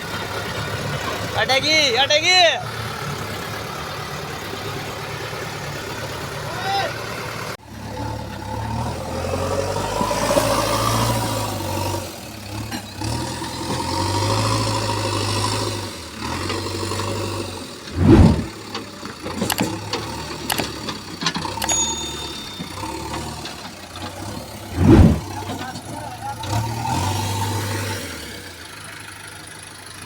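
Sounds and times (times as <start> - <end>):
diesel engine humming: 0.0 - 30.0
loud low thud: 18.0 - 18.5, 24.7 - 25.3.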